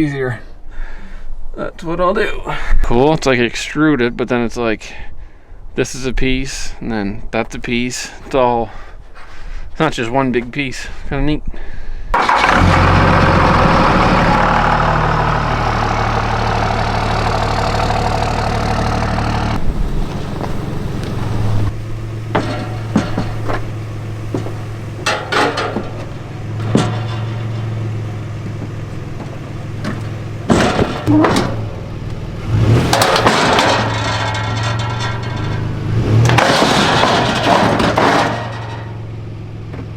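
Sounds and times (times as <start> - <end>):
vehicle engine idling: 12.2 - 39.9
short sharp knocks and clanks: 19.5 - 39.0.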